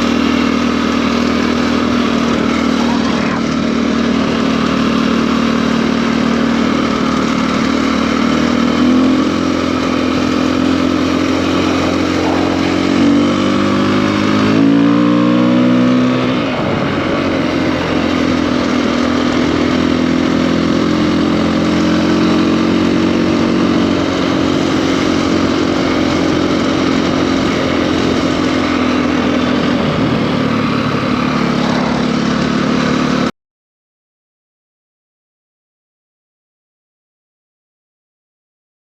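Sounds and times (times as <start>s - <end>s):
motorcycle engine revving: 0.0s - 33.3s.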